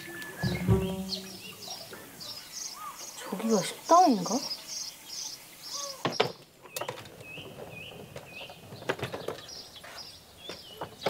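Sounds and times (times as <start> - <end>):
small birds chirping: 0.0 - 11.0
sharp knocks and clicks: 0.4 - 1.5.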